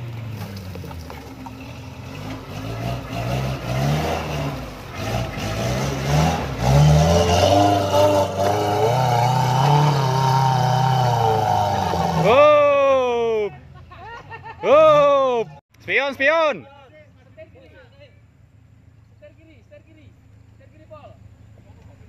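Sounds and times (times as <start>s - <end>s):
car engine revving: 0.0s - 12.7s.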